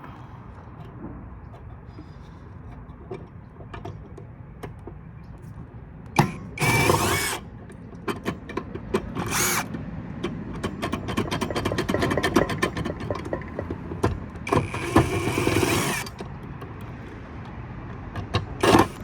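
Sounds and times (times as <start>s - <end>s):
power drill-driver running: 6.2s - 7.5s, 9.2s - 9.7s, 14.5s - 16.2s, 18.6s - 19.0s.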